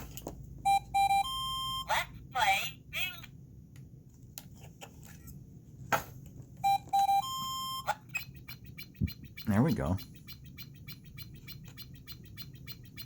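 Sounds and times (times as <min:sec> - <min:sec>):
toy beeping: 0:00.6 - 0:02.7, 0:06.6 - 0:13.0.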